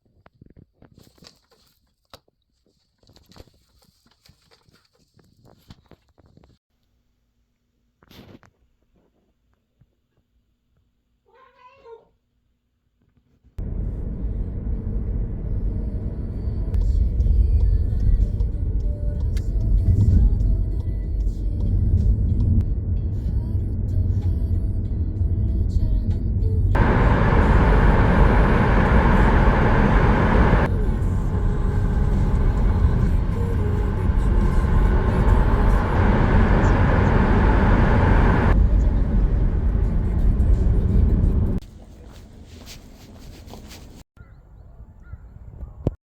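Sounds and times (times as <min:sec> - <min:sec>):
cat meowing: 0:11.3 - 0:12.2
car road noise rumble: 0:13.6 - 0:41.6
loud rushing noise: 0:26.8 - 0:41.6.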